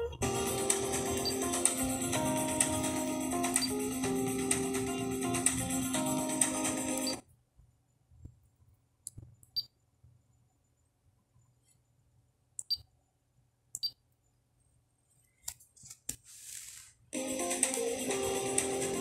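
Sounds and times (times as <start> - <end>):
guitar music: 0.0 - 7.2, 17.2 - 19.0.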